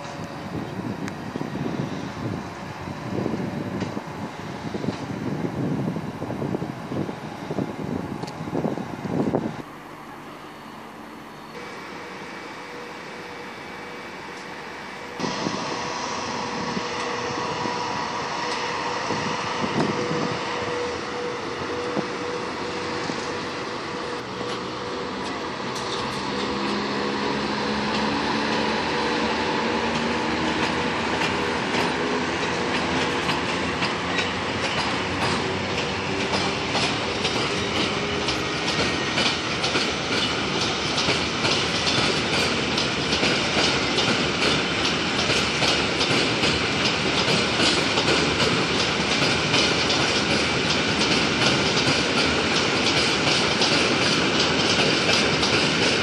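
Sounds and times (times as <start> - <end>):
train wheels clattering on rails: 3.1 - 6.0, 14.3 - 56.0
electrical whine: 7.0 - 25.6.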